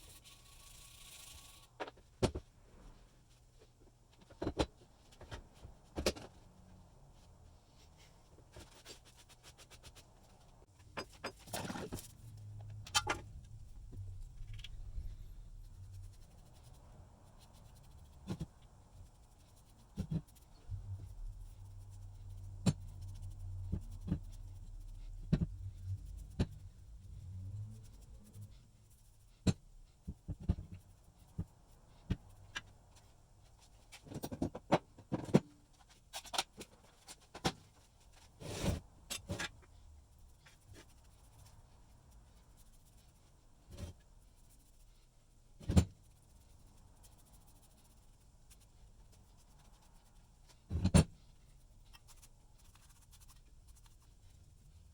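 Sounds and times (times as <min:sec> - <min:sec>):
low steady hum: 0:09.9 - 0:33.9.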